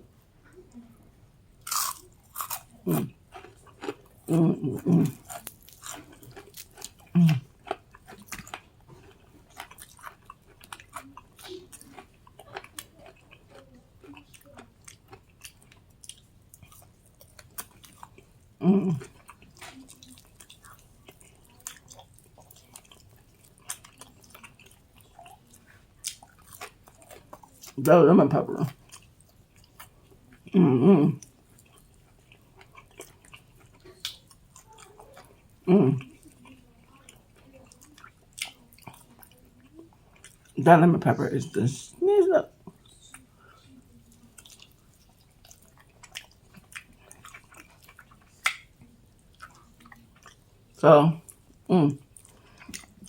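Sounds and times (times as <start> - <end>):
crunchy chewing: 1.6 - 27.8, 28.6 - 40.6, 42.5 - 53.0
mouth sounds: 2.4 - 3.1, 4.3 - 5.4, 7.1 - 7.5, 18.6 - 19.1, 30.5 - 31.2, 35.6 - 36.1.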